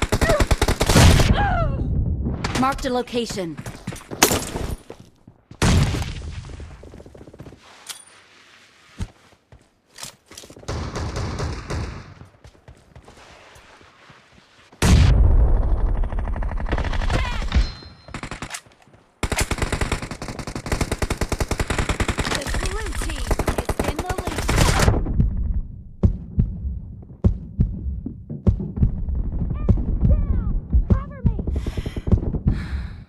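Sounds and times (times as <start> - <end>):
video game automatic gunfire: 19.2 - 24.9.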